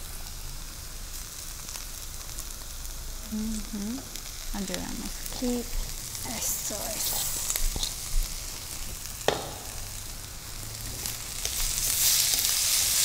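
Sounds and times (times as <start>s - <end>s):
food sizzling in a wok: 0.0s - 13.0s
sharp knock: 9.3s - 9.7s.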